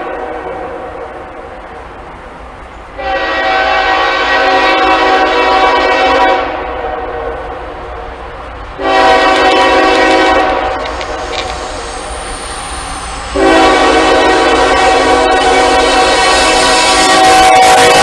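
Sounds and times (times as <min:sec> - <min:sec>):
low rumble of passing train: 0:00.0 - 0:18.0
locomotive air horn blast: 0:03.0 - 0:07.6, 0:08.8 - 0:12.1, 0:13.3 - 0:18.0.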